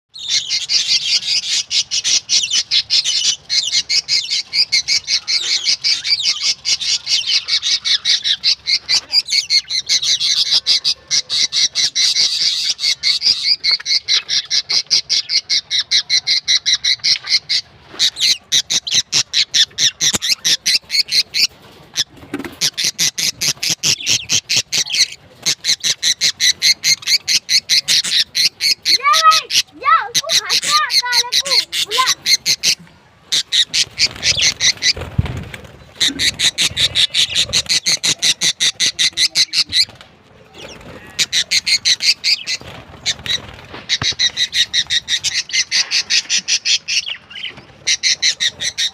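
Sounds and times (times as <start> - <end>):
budgies chattering: 0.1 - 48.9.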